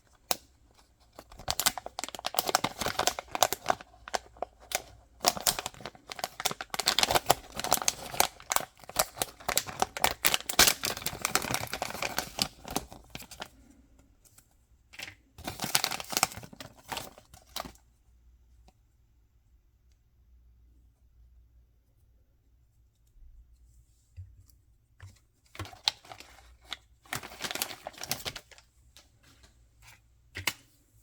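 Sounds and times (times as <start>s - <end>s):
packaging crinkling and tearing: 0.0s - 13.5s, 15.0s - 17.7s, 25.6s - 28.7s.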